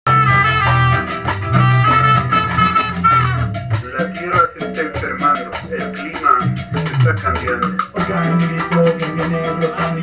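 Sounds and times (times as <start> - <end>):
high lead note: 0.0 - 4.2
band playing instrumental: 0.0 - 10.0
bass line: 0.0 - 10.0
drum strokes: 0.1 - 10.0.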